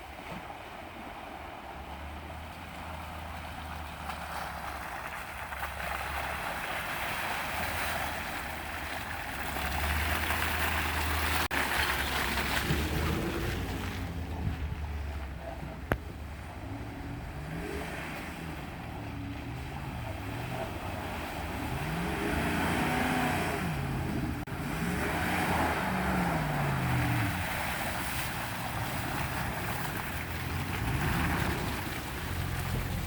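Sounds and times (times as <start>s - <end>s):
truck engines revving: 1.5s - 33.0s.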